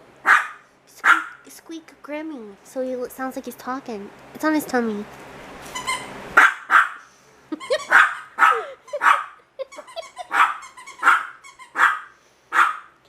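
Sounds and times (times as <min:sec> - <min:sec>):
puppy yapping: 0:00.2 - 0:01.4, 0:05.7 - 0:07.1, 0:07.7 - 0:13.0
puppy grumbling: 0:07.6 - 0:10.6.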